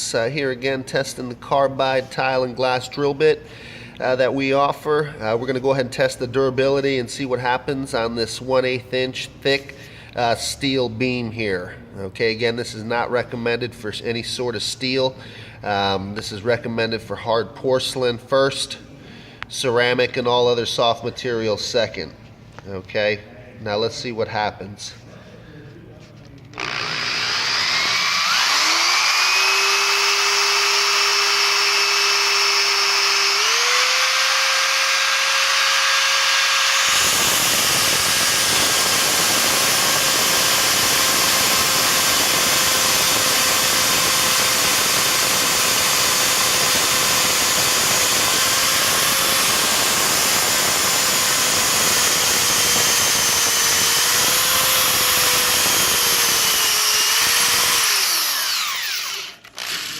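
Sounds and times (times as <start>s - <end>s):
power drill motor whine: 26.5s - 59.9s
drill bit grinding into steel: 26.6s - 59.9s.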